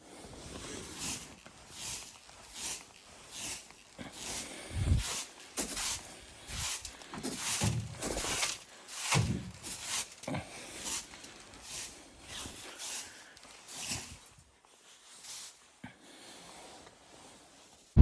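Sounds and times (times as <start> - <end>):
footsteps crunching in snow: 0.4 - 10.1.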